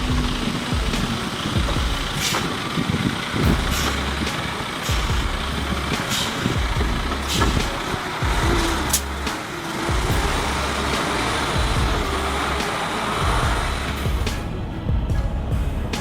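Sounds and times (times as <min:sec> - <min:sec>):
heavy truck rumbling: 0:00.0 - 0:16.0.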